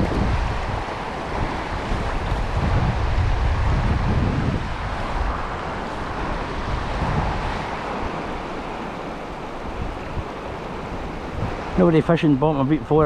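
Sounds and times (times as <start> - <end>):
steady rushing hiss: 0.0 - 13.0
wind buffeting microphone: 0.0 - 13.0.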